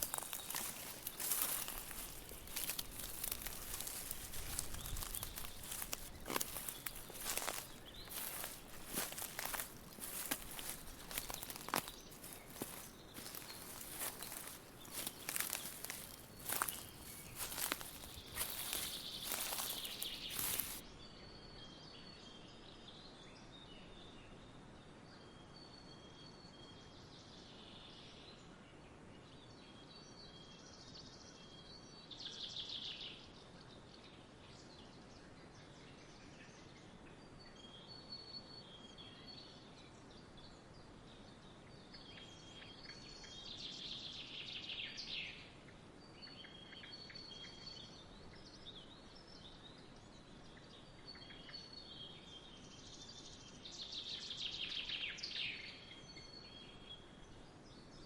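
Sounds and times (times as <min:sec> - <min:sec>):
loud crackling rustle: 0:00.0 - 0:20.8
songbirds chirping and trilling: 0:00.0 - 0:20.8.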